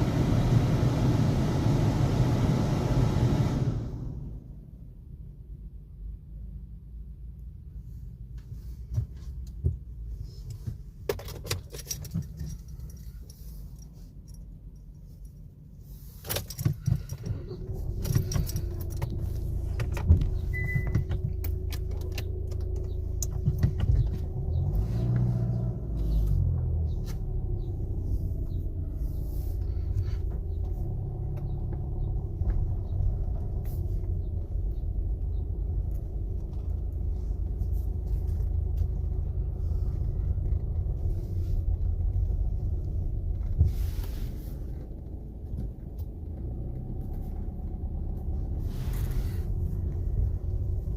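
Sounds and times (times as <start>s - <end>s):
car engine rumble: 0.0s - 50.9s
keys jingling: 11.2s - 15.4s.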